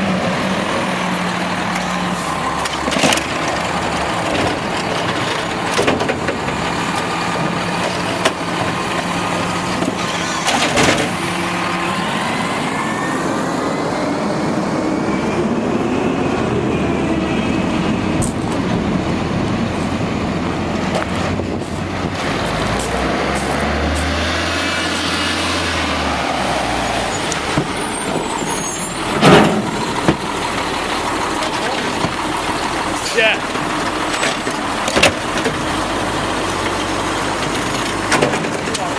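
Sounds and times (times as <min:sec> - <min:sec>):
garbage truck running: 0:00.0 - 0:38.9
rising whines: 0:09.4 - 0:20.2.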